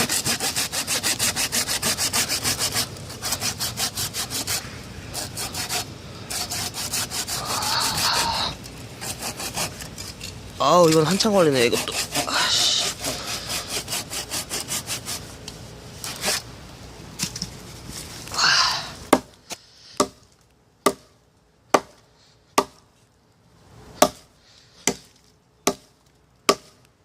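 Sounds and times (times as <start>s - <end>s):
hand saw rasping through wood: 0.0s - 8.3s, 9.0s - 9.9s, 11.0s - 15.3s
hatchet chopping wood: 19.1s - 20.2s, 20.8s - 21.1s, 21.7s - 22.0s, 22.6s - 22.8s, 24.0s - 25.9s, 26.5s - 26.8s.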